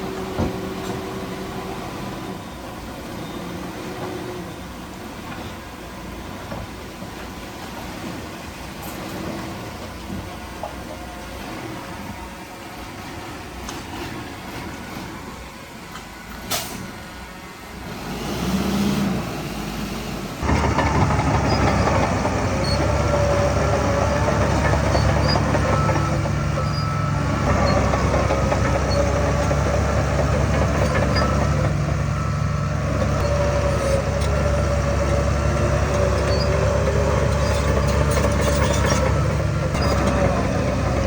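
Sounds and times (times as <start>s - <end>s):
diesel earthmoving machinery running: 0.0s - 41.0s
faint wavering squeal: 20.5s - 40.7s.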